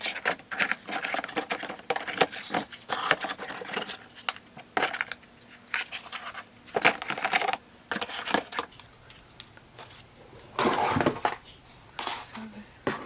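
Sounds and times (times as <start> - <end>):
packaging rustling: 0.0 - 8.7, 9.8 - 11.4.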